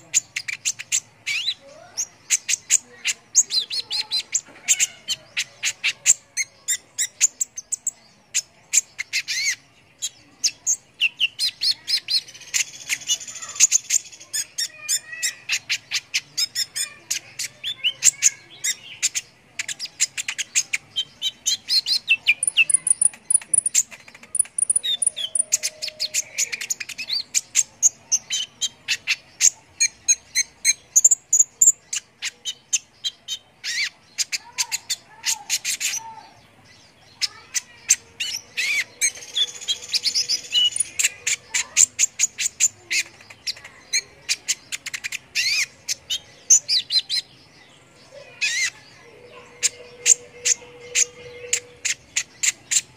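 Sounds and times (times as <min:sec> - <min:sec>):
bird singing high chirps and trills: 0:00.0 - 0:52.9.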